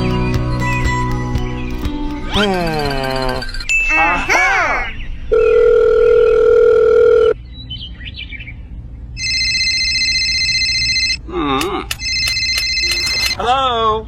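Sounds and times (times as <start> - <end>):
low electronic beep: 2.2 - 4.4
higher ringing electronic tone: 5.3 - 7.4, 9.2 - 11.2, 12.0 - 13.4
clicks: 11.6 - 13.4.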